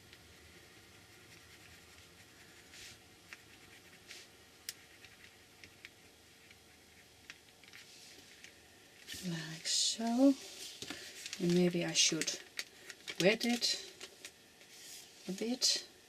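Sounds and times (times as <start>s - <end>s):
pencil scratching on paper: 0.6s - 5.7s.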